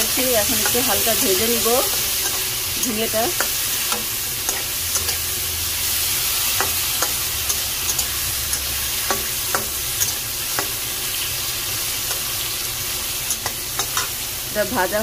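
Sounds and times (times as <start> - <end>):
vegetables sizzling in hot oil: 0.0 - 15.0
metal spatula clicking on pan: 1.9 - 5.2, 6.6 - 10.8, 13.3 - 14.1.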